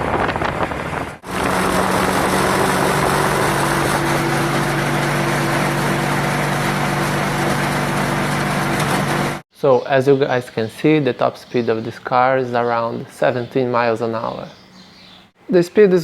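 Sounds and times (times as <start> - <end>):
steady rushing noise: 0.0 - 4.6
small engine running under load: 0.9 - 9.4.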